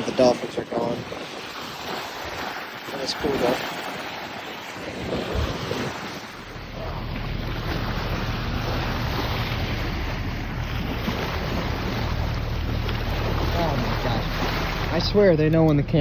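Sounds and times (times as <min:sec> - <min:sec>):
water rushing past boat: 0:00.0 - 0:16.0
wind on microphone: 0:00.0 - 0:16.0
low steady rumble: 0:06.2 - 0:16.0.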